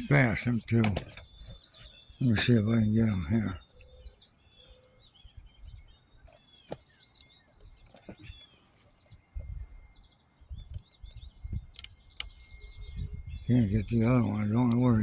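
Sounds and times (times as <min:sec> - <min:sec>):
small birds chirping: 0:00.0 - 0:15.0
low rumbles on microphone: 0:10.5 - 0:15.0.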